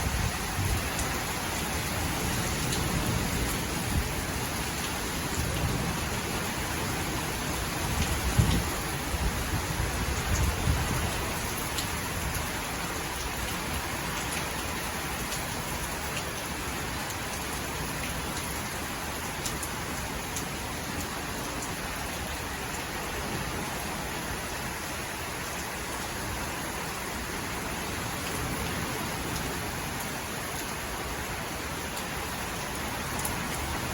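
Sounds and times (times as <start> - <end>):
heavy rain pattering: 0.0 - 33.9.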